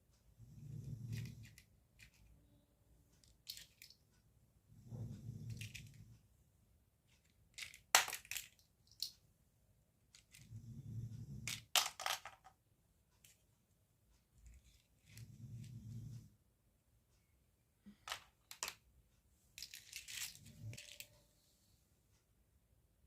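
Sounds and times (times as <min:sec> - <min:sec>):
plastic clicks and crackles: 0:03.2 - 0:04.0, 0:07.1 - 0:09.2, 0:18.0 - 0:18.8.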